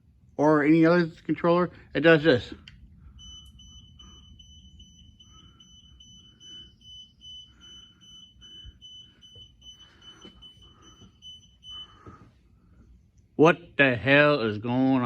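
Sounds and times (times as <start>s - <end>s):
garage door opener beeping: 2.8s - 12.3s.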